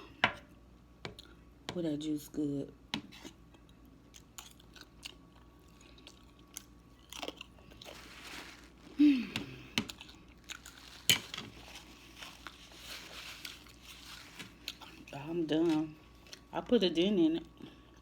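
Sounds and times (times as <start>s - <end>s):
person chewing: 3.5s - 15.2s
falling hum-like vocal sound: 8.9s - 9.9s.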